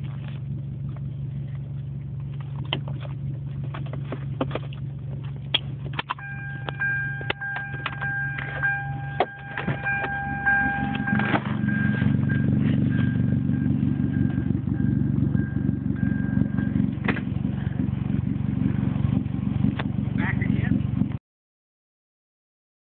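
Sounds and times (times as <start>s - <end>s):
car engine idling: 0.0s - 21.2s
steady high tone: 6.2s - 16.9s.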